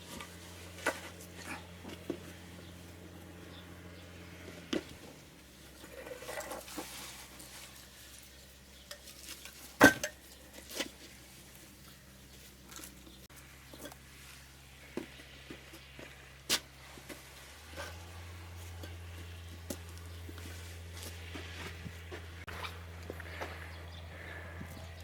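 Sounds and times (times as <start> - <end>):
concrete blocks knocking and scraping: 4.5 - 7.8, 8.8 - 11.2.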